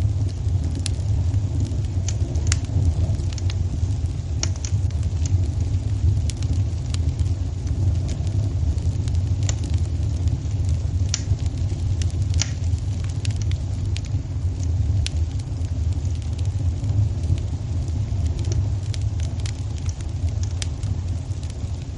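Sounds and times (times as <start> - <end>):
low fire rumble: 0.0 - 21.9
wood fire crackling: 0.0 - 21.9.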